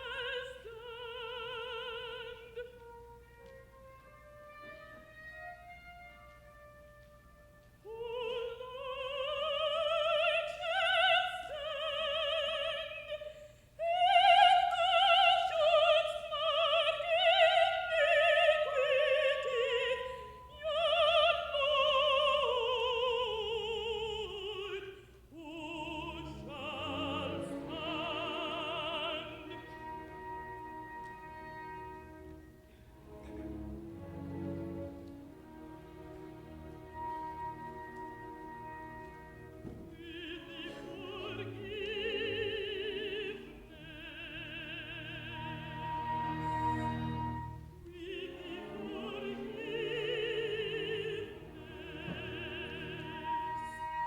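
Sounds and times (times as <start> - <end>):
orchestra playing: 0.0 - 13.2, 25.4 - 54.0
contralto singing with vibrato: 7.9 - 29.8, 39.6 - 46.2, 47.9 - 54.0.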